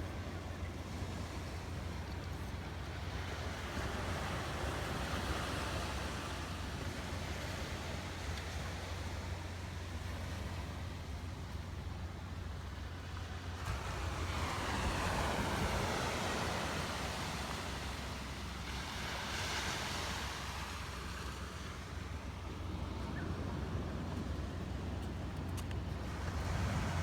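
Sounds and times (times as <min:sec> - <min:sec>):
sea waves breaking on beach: 0:00.0 - 0:27.0.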